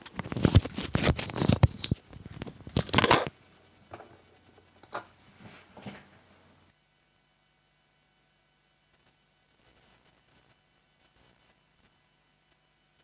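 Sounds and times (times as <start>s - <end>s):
rustling and clicking handling noise: 0.0s - 6.7s.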